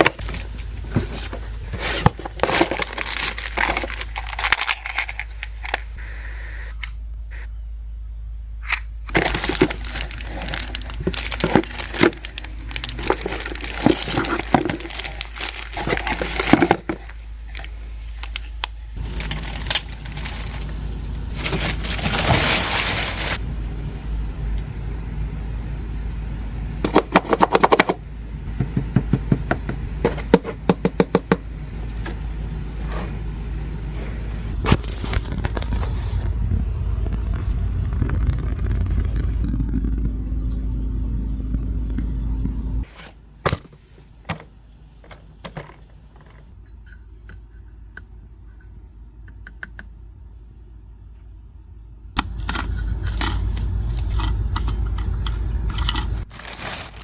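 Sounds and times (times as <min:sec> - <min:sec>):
packaging rustling: 0:00.0 - 0:05.9, 0:09.1 - 0:23.4, 0:55.7 - 0:57.0
steady low hum: 0:00.0 - 0:57.0
rapid clicking and rattling: 0:09.1 - 0:18.4, 0:19.0 - 0:23.4.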